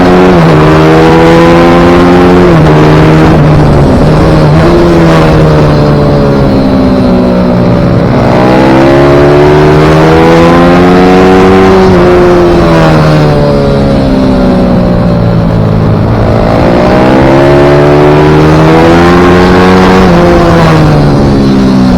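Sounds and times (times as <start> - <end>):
pit bike engine racing: 0.0 - 21.9.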